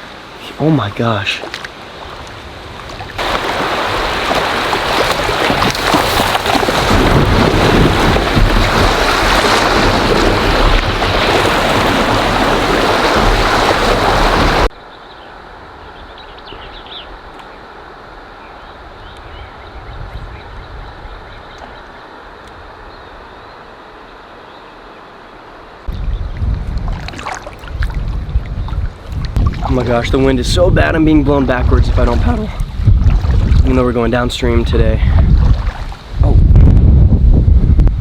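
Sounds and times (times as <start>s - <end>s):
rush of wind and water: 0.0s - 38.0s
wind buffeting microphone: 1.9s - 14.7s, 18.8s - 21.7s, 25.9s - 38.0s.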